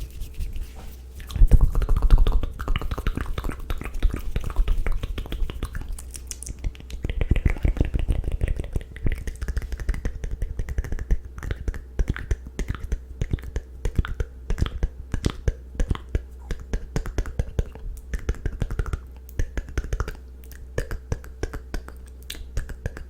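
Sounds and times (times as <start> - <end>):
low hum: 0.0 - 23.0
wet tongue and lip clicks: 1.2 - 23.0.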